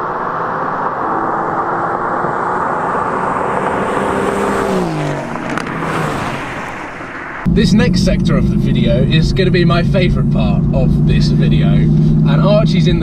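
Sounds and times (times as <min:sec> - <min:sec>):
car engines passing by: 0:00.0 - 0:13.0.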